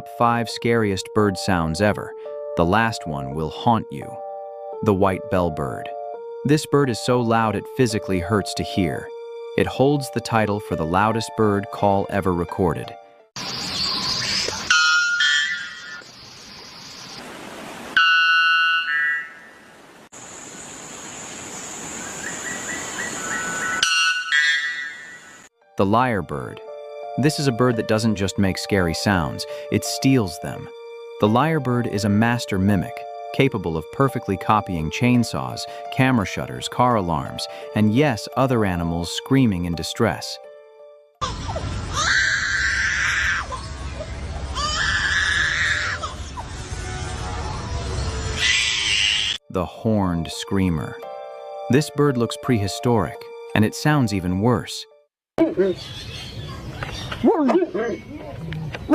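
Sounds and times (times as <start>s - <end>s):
bird screaming: 13.8s - 16.0s, 18.0s - 19.6s, 22.1s - 25.5s, 41.2s - 49.4s
bellbird ringing call: 13.9s - 16.0s, 23.6s - 25.4s.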